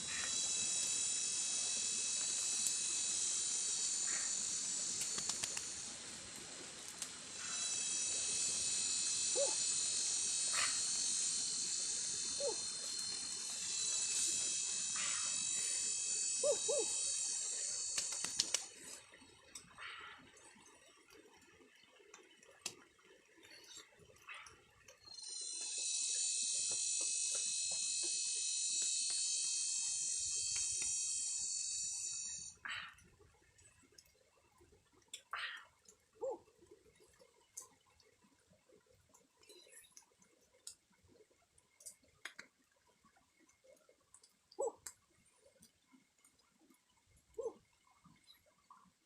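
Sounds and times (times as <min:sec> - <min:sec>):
insects droning: 0:00.0 - 0:20.7, 0:23.6 - 0:33.0
faint clicks: 0:01.7 - 0:08.6, 0:16.4 - 0:19.8, 0:21.1 - 0:22.8, 0:23.4 - 0:32.4, 0:41.6 - 0:42.6, 0:43.8 - 0:45.0
short low animal calls: 0:07.4 - 0:18.3.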